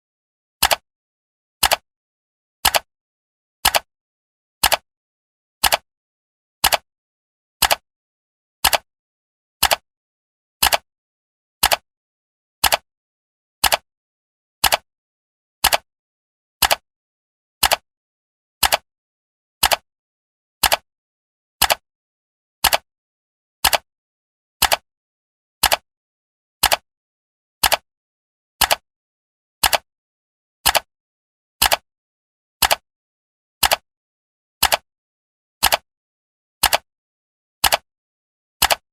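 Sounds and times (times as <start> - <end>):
clock ticking: 6.6 - 6.8, 9.6 - 9.8, 12.6 - 12.8, 15.6 - 15.8, 16.6 - 16.8, 19.6 - 19.8, 20.6 - 20.8, 21.6 - 21.8, 22.6 - 22.8, 23.6 - 23.8, 25.6 - 25.8, 26.6 - 26.8, 27.6 - 27.8, 28.6 - 28.8, 29.6 - 29.9, 30.6 - 30.9, 31.6 - 31.8, 32.6 - 32.8, 33.6 - 33.8, 34.6 - 34.8, 35.6 - 35.8, 36.6 - 36.8, 37.6 - 37.8, 38.6 - 38.8.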